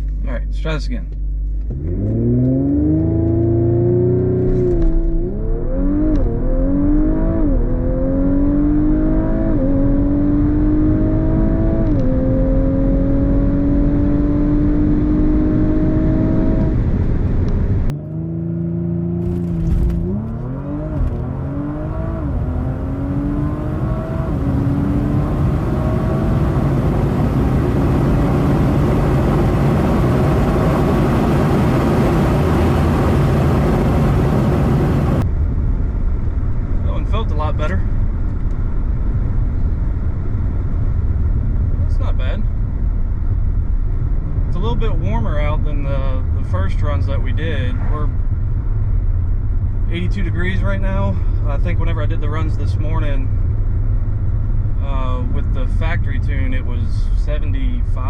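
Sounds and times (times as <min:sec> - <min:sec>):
car engine accelerating: 0:00.0 - 0:58.0
road and wind noise: 0:00.0 - 0:58.0
gear upshifts banging: 0:00.9 - 0:35.3.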